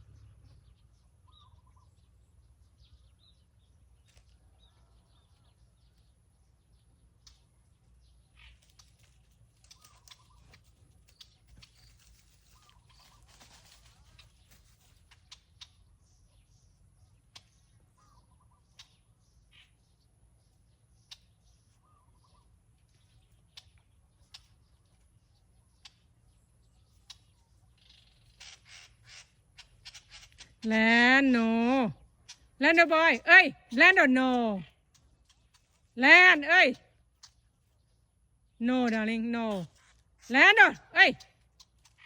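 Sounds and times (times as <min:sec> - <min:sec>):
faint bird calls: 0:09.6 - 0:19.8, 0:21.0 - 0:25.0.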